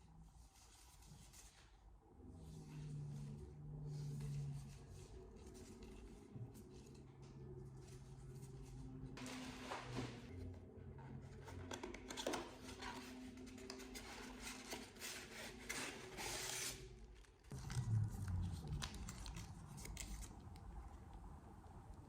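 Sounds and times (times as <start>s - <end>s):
low steady hum: 17.5s - 22.0s.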